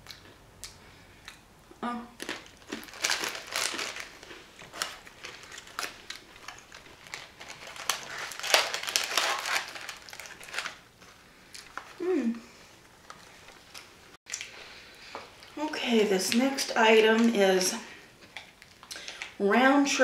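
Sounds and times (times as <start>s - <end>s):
plastic packaging crinkling: 2.2s - 12.0s.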